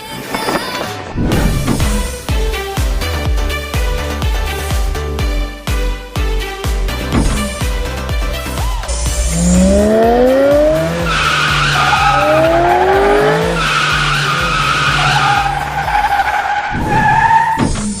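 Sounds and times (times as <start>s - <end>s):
race car engine revving: 8.8s - 17.9s
tyre squeals: 9.3s - 18.0s.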